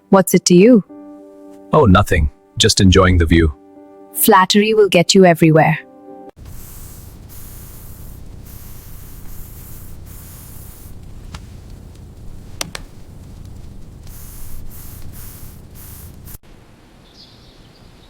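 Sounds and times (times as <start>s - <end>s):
sharp crackles: 6.4s - 16.4s
steady rain: 6.4s - 16.4s.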